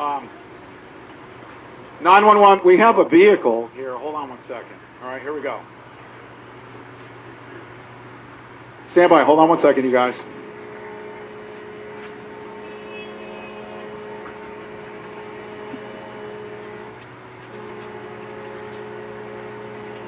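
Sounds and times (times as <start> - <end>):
vehicle hum inside cab: 9.7 - 20.0.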